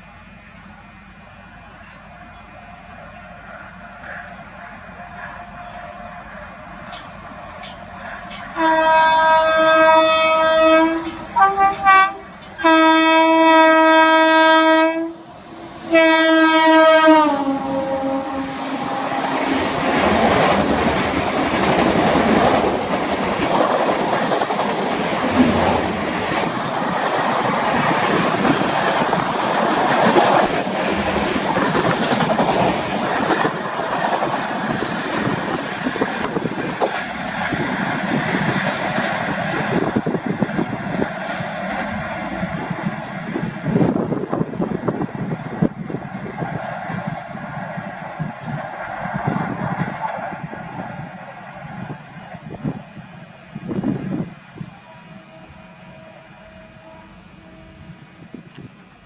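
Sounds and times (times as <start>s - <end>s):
train wheels clattering on rails: 6.7s - 13.2s, 18.9s - 54.8s
locomotive horn blasts: 8.3s - 15.2s, 15.9s - 19.6s, 54.6s - 58.5s.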